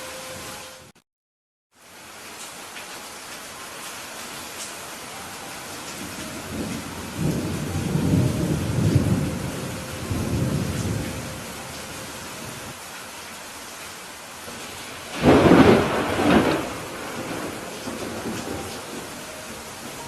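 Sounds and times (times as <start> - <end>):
steady rain: 0.0 - 1.0, 1.7 - 20.0
thunder rumbling: 5.7 - 12.8, 14.5 - 20.0.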